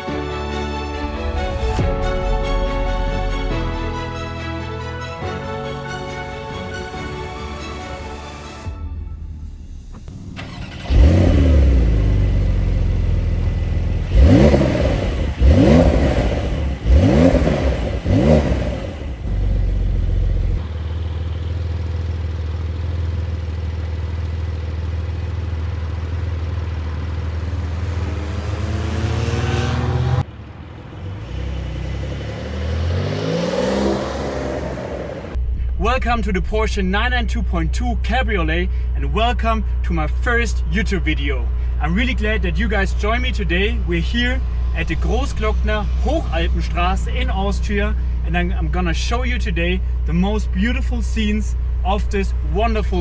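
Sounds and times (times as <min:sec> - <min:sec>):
car engine starting: 0:00.0 - 0:35.7, 0:37.5 - 0:53.0
engine revs blipped: 0:01.1 - 0:35.4
car engine idling: 0:08.8 - 0:35.6.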